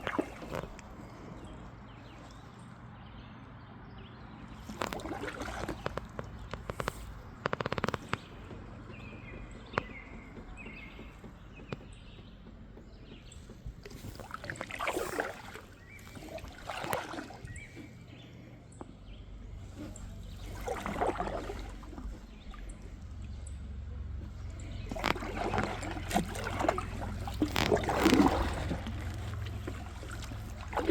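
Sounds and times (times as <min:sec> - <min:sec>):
paddle strokes splashing water: 0:00.0 - 0:02.6, 0:04.4 - 0:30.9
low steady rumble: 0:08.2 - 0:30.9.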